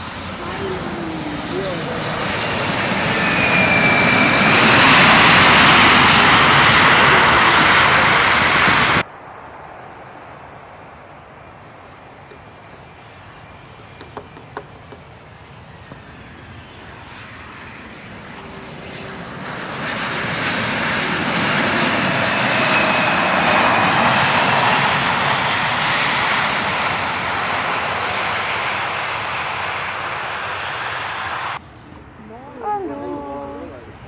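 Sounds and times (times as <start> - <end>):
high engine whine: 0.0 - 26.0
airliner engines rushing: 0.0 - 34.0.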